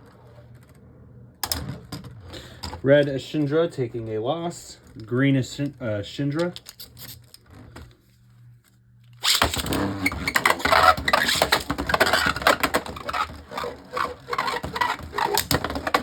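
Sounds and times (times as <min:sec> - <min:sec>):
spinning tops scraping and clacking: 0:09.2 - 0:16.0.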